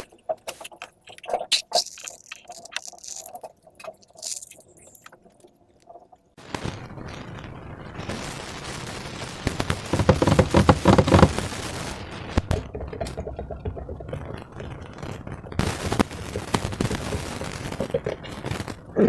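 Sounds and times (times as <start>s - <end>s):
slime squishing by hand: 0.0s - 5.3s, 9.8s - 11.5s.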